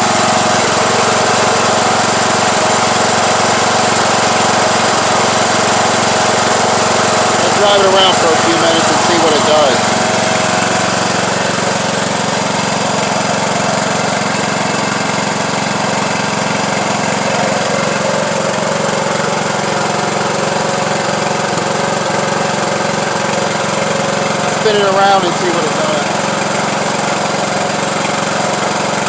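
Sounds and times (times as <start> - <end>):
lawn tractor engine running: 0.0 - 29.0.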